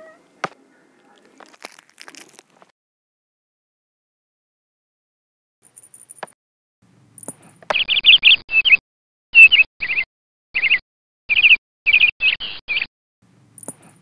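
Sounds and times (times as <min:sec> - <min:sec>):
songbird chirping: 0:07.2 - 0:08.8.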